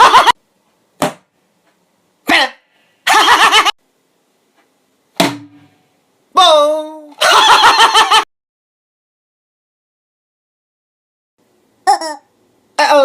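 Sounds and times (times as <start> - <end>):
mouth sound effects: 11.8 - 13.0.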